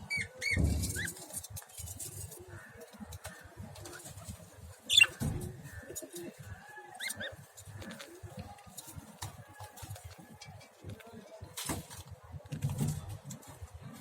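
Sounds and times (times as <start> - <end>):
lovebirds chirping: 4.8 - 8.4.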